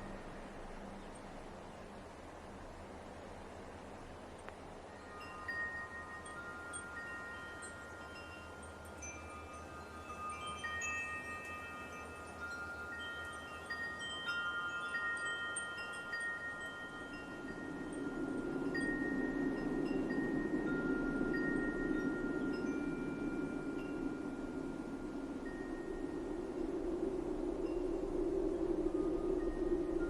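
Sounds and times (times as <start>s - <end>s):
light wind hiss: 0.0s - 30.0s
wind chimes ringing: 4.9s - 26.4s.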